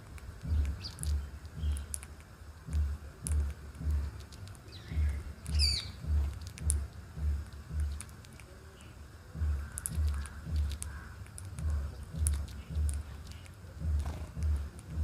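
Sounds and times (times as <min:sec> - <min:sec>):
small birds chirping: 0:00.0 - 0:15.0
low thumping: 0:02.7 - 0:04.2, 0:04.9 - 0:08.0, 0:09.4 - 0:15.0.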